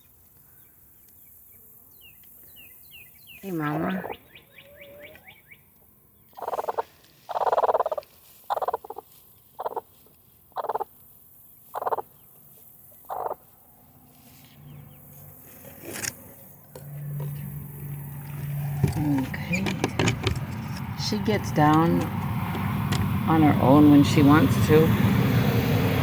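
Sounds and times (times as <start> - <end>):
hen clucking harshly: 6.4 - 9.0, 9.6 - 9.8, 10.6 - 10.8, 11.8 - 12.0, 13.1 - 13.4.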